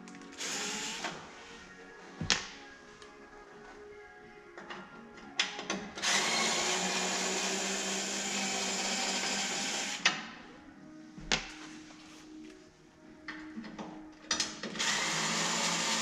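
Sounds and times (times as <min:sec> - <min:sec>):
power drill running: 0:00.4 - 0:01.2, 0:06.0 - 0:10.0, 0:14.8 - 0:16.0.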